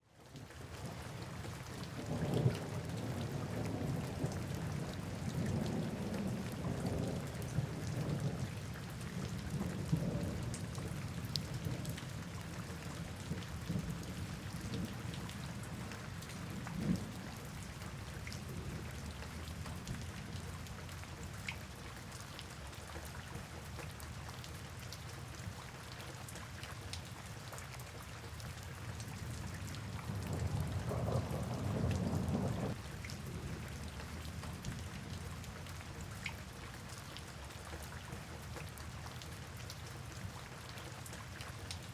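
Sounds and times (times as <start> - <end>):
steady rain: 0.0 - 41.9
rolling thunder: 29.9 - 33.9.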